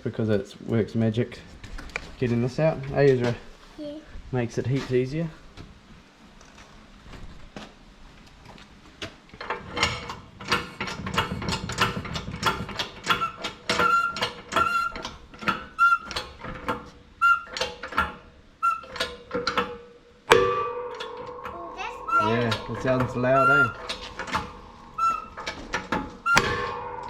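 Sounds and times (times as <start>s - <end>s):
press clicking and squealing: 11.8s - 19.7s, 22.0s - 27.0s.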